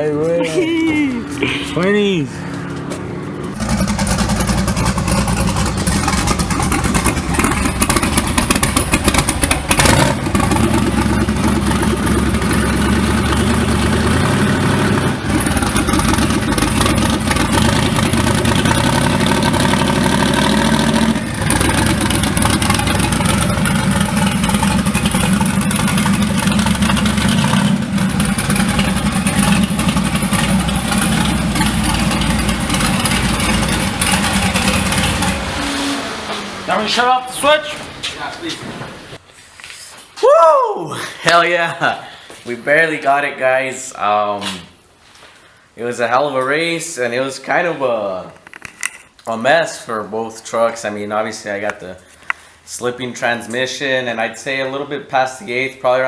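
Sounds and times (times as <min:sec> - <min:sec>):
engine running at full throttle: 0:01.4 - 0:37.0.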